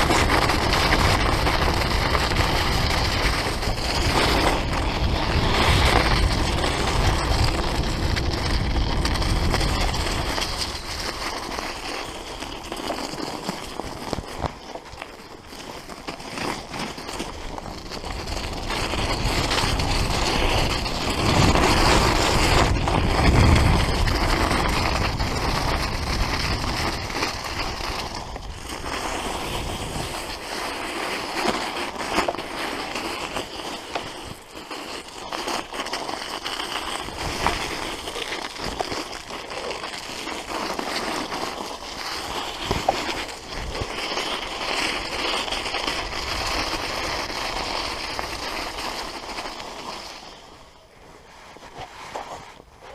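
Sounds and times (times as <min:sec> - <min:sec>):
wind buffeting microphone: 0:00.0 - 0:11.2, 0:18.0 - 0:30.4
tyre rolling noise: 0:00.0 - 0:52.9.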